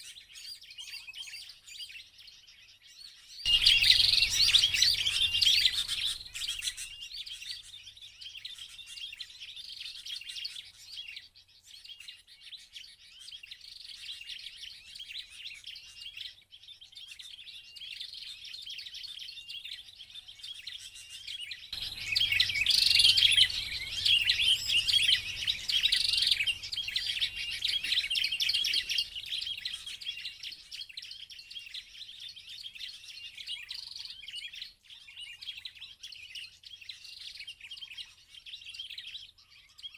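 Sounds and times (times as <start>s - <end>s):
bird chirping and twittering: 3.0s - 11.2s, 17.0s - 39.9s.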